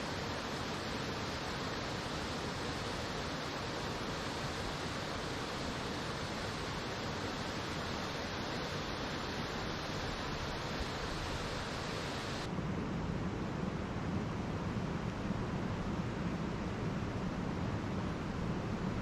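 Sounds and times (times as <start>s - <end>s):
flowing water rushing: 0.0s - 12.5s.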